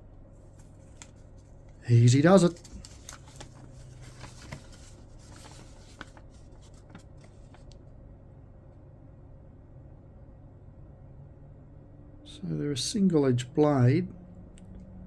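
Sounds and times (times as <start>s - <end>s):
packaging rustling: 2.0s - 7.7s.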